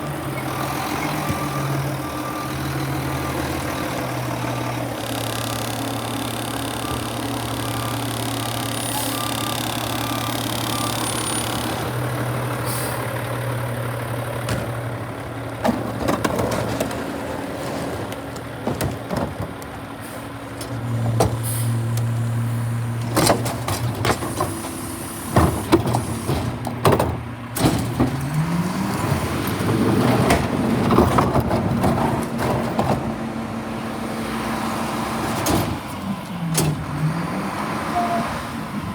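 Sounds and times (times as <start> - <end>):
garbage truck engine running: 0.0 - 38.9
metal clanks and bangs: 14.0 - 21.8, 23.0 - 28.6, 29.5 - 33.3.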